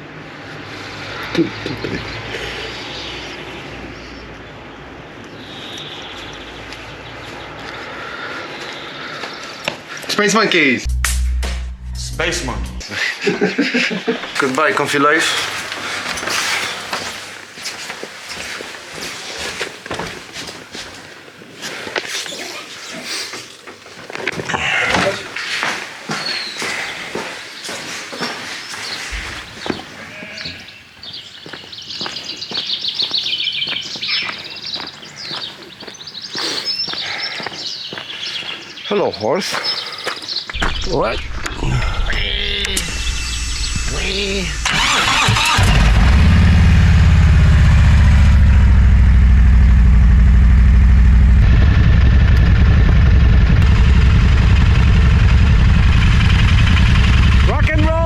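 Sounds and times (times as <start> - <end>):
small birds twittering: 0.5 - 10.4, 14.2 - 41.4
motorcycle engine idling: 46.0 - 57.8.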